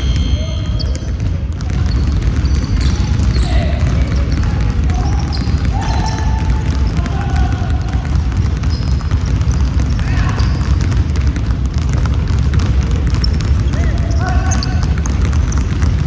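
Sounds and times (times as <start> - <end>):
basketball bouncing on floor: 0.0 - 16.0
sneaker squeaks: 0.0 - 16.0
people shouting: 4.9 - 8.2.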